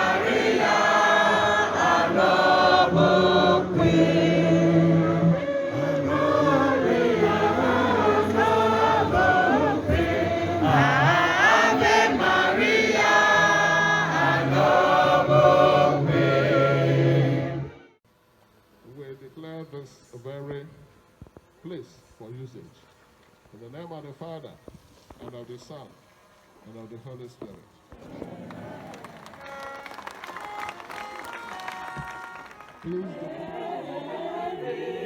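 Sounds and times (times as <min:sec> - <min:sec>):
choir singing a hymn: 0:00.0 - 0:18.0, 0:32.9 - 0:35.0.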